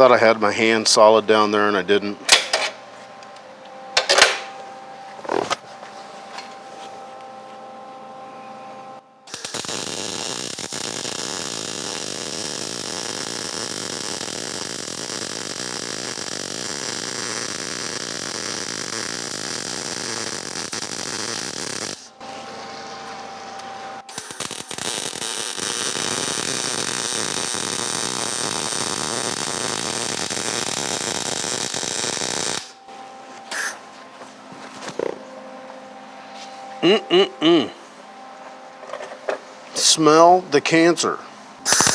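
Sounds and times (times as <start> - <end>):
welding arc crackling: 9.3 - 22.4, 24.0 - 32.8, 41.7 - 41.9.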